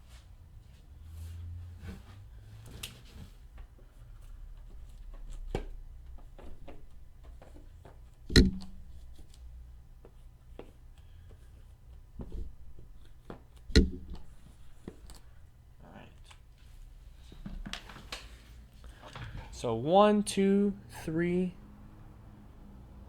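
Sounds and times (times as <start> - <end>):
low steady hum: 4.0 - 17.4
clicks and rustles on table: 4.7 - 9.4, 12.2 - 15.4
knocks on table: 8.3 - 9.0, 13.7 - 15.0.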